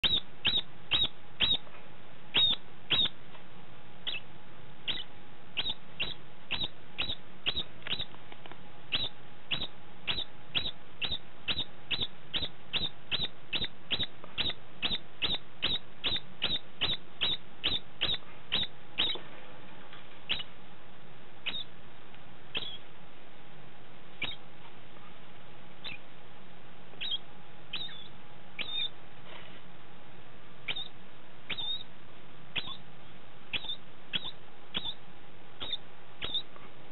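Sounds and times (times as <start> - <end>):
rodent squeaky chirps: 0.0 - 1.7, 2.3 - 3.2, 4.0 - 8.2, 8.9 - 19.2, 20.3 - 20.5, 21.4 - 21.7, 22.5 - 22.8, 24.2 - 24.4, 25.8 - 26.1, 27.0 - 29.0, 30.6 - 31.9, 32.5 - 32.8, 33.5 - 35.0, 35.6 - 36.5.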